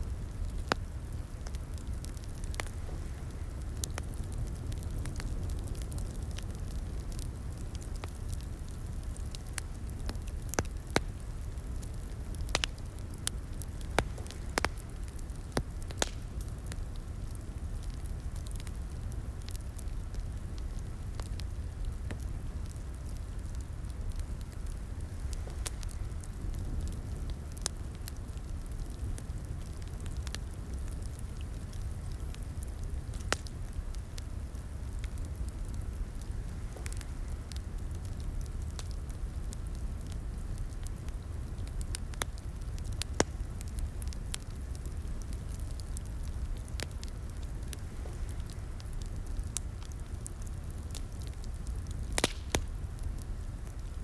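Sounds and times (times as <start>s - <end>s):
fire crackling: 0.0s - 54.0s
wood popping and snapping: 52.2s - 52.7s.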